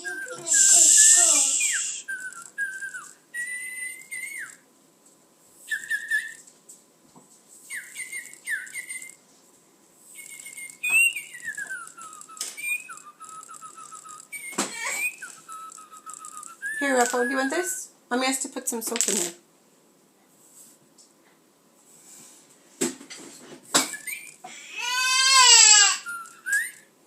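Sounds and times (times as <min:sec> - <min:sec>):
parrot whistling: 0:00.0 - 0:04.6, 0:05.7 - 0:06.4, 0:07.7 - 0:09.2, 0:10.2 - 0:17.8, 0:23.9 - 0:26.9
sharp clicks: 0:02.1 - 0:03.1, 0:10.2 - 0:17.3.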